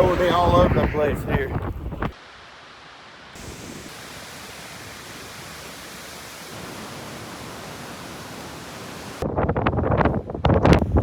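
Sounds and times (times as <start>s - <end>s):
strong wind rushing: 0.0s - 2.2s.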